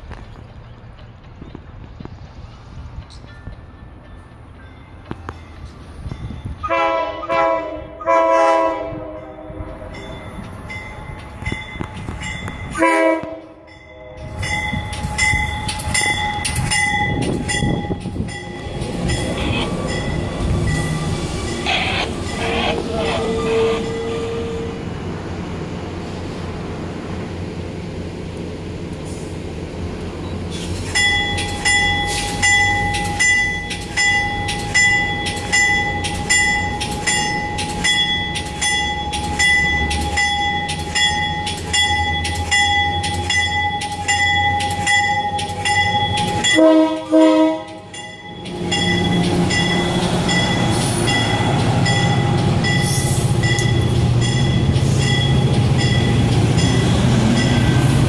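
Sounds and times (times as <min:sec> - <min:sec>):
train bell ringing: 0:03.0 - 0:06.8, 0:09.1 - 0:24.9, 0:30.9 - 0:58.0
train horn blast: 0:06.6 - 0:09.8, 0:12.7 - 0:14.4, 0:21.7 - 0:24.9, 0:46.3 - 0:47.9
train rumble pulling away: 0:13.7 - 0:58.0.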